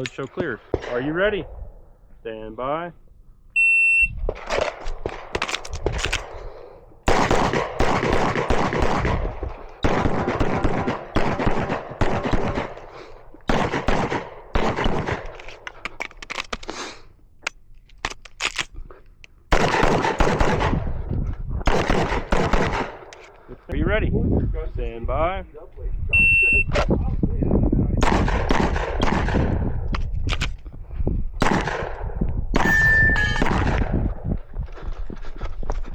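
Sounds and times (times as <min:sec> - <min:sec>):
pistol shots: 0:07.1 - 0:12.9, 0:13.5 - 0:15.4, 0:19.5 - 0:20.8, 0:21.7 - 0:23.1, 0:28.0 - 0:29.6, 0:31.4 - 0:32.0, 0:32.6 - 0:33.9.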